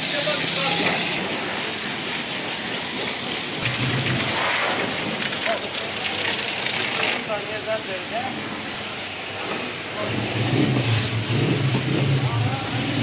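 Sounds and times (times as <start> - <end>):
high-pressure water jet spraying: 0.0 - 13.0.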